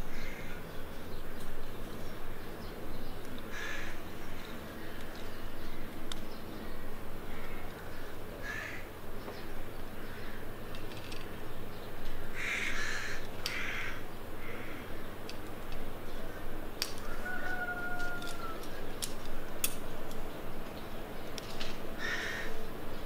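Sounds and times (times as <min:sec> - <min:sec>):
bird's harsh calls: 0:00.0 - 0:10.6, 0:11.2 - 0:15.2, 0:16.1 - 0:18.9, 0:22.0 - 0:22.6.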